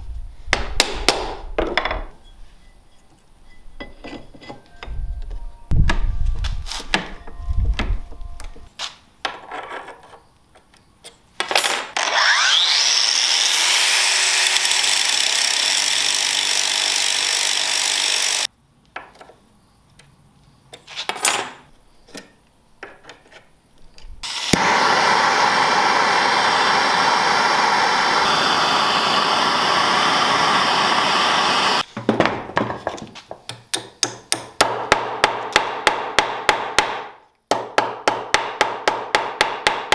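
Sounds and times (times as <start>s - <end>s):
power tool whining: 12.0s - 18.5s, 24.2s - 31.9s
rapid hammer strikes: 34.0s - 39.9s.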